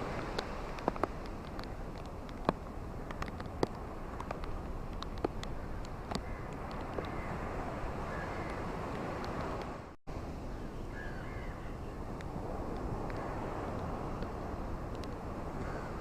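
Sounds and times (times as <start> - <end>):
ocean waves on shore: 0.0 - 16.0
faint bird calls: 8.1 - 8.7, 10.5 - 12.0.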